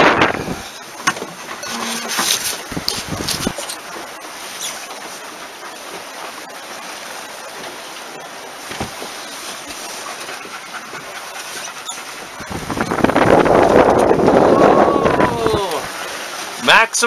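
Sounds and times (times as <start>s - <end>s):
strong wind: 0.0s - 3.7s, 12.0s - 16.7s
water rushing past hull: 0.0s - 17.0s.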